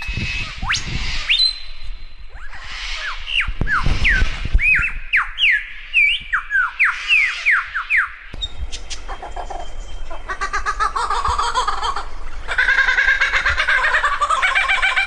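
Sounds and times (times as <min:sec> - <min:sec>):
bird buzzy pulsing chatter: 0:00.0 - 0:05.7, 0:06.7 - 0:15.0
bird whistling descending notes: 0:00.0 - 0:11.4.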